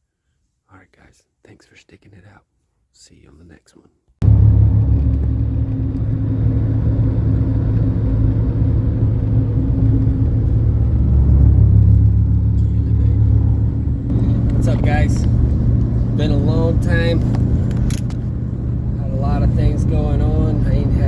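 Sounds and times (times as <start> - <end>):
vehicle engine and road rumble: 4.2 - 21.0.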